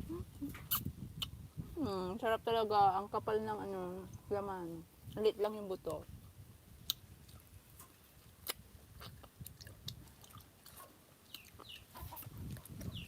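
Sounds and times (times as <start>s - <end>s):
faint mouth clicks: 0.1s - 1.4s
person chewing wetly: 6.8s - 7.5s, 8.2s - 13.0s.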